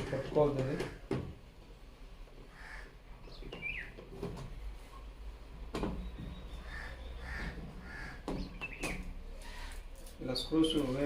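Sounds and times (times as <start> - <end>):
faint bird calls: 2.5 - 4.0, 5.9 - 9.9.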